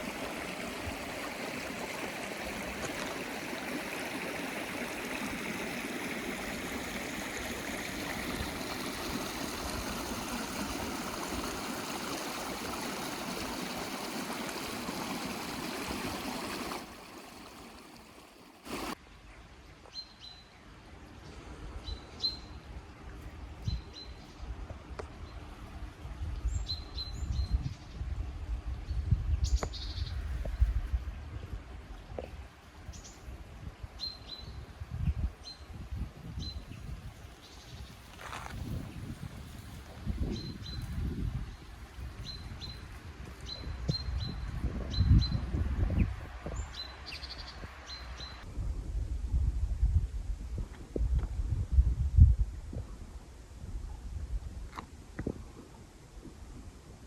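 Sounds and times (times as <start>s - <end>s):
mountain stream rushing: 0.0s - 19.0s.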